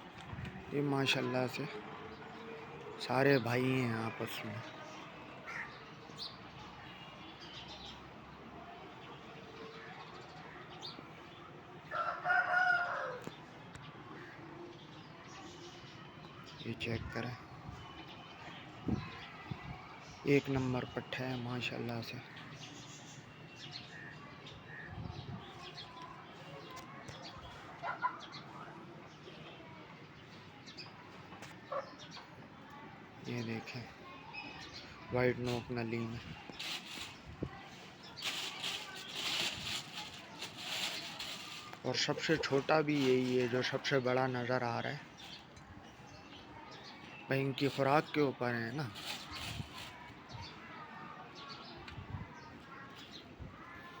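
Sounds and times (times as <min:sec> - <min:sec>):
rooster crowing: 0:11.9 - 0:13.2.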